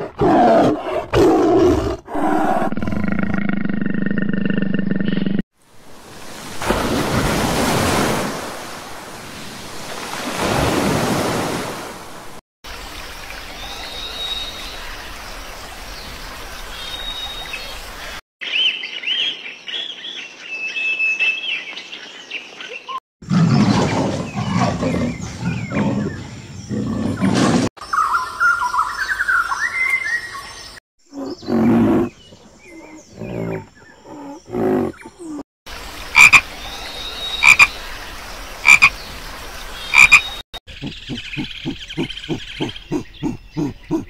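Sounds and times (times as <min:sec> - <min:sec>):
leopard growling call: 0:31.1 - 0:35.4
high chirping calls: 0:36.2 - 0:37.9, 0:38.6 - 0:44.0.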